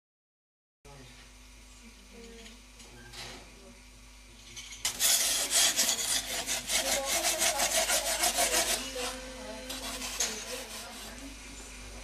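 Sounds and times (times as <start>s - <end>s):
hand tool rasping strokes: 4.9s - 11.3s
faint scrapes: 4.9s - 11.4s.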